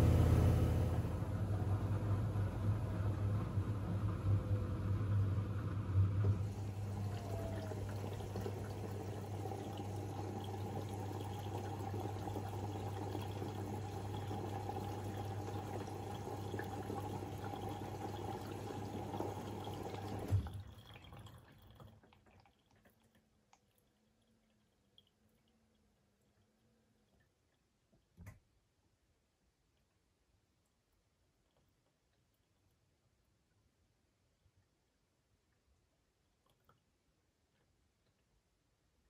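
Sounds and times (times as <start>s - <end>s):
washing machine hum: 0.0s - 23.1s
water flowing through washing machine: 0.0s - 25.7s
water trickling: 6.4s - 27.6s.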